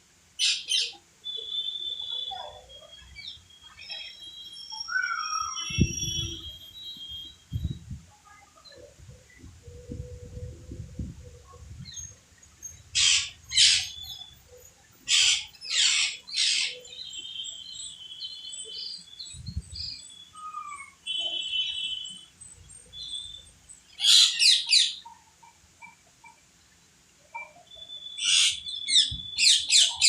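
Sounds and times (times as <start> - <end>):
parrots chirping and chattering: 11.9 - 17.0, 23.0 - 26.4, 27.3 - 30.0
parrots screeching: 13.0 - 14.0.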